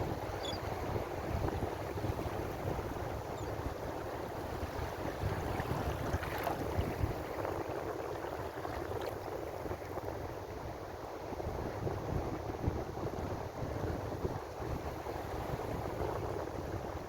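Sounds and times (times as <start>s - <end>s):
ocean surf washing: 0.0s - 11.2s.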